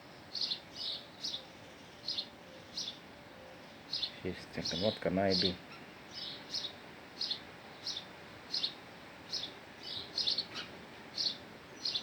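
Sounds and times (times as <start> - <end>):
small bird chirping: 0.3 - 3.0, 5.7 - 12.0.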